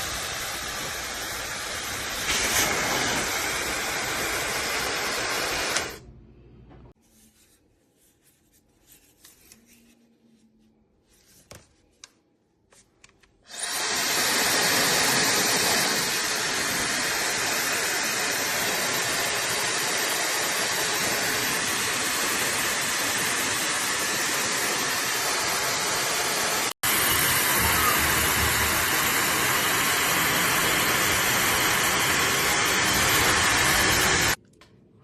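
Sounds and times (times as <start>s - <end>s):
hair dryer blowing air: 0.0s - 6.0s, 13.5s - 34.4s.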